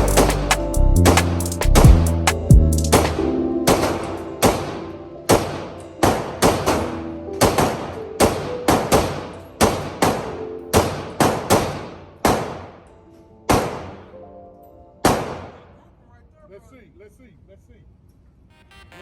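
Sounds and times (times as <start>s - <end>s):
background music: 0.0s - 16.0s
gunshots with ringing tail: 2.9s - 14.2s, 15.0s - 15.8s.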